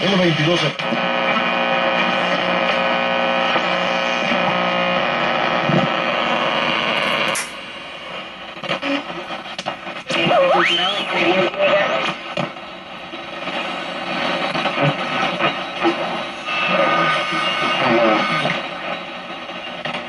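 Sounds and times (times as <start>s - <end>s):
buzzy radio signal with hum: 0.0s - 20.0s
radio static crackling: 0.0s - 20.0s
rising radio whistle: 10.3s - 11.3s, 16.4s - 18.5s.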